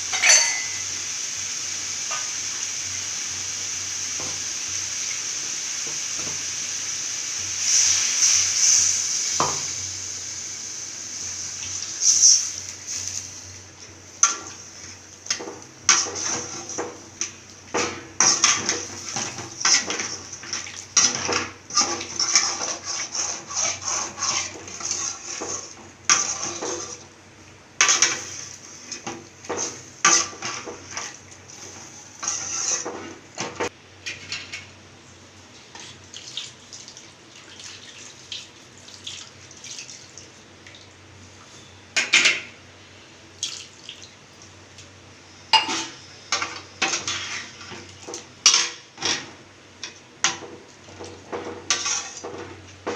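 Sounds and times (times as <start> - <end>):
metal utensil scraping a pot: 21.0 - 27.0, 32.2 - 33.2, 51.7 - 52.4.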